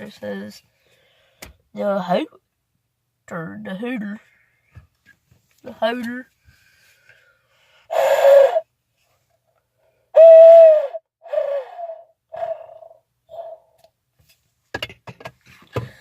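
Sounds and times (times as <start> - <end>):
owl call hoots: 7.9 - 8.6, 10.2 - 13.8.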